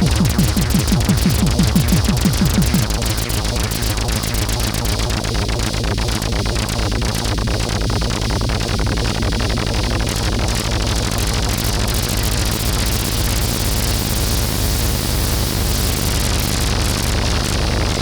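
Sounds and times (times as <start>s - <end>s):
fast even synth pulses: 0.0s - 3.4s
synthesizer low drone: 0.0s - 3.5s.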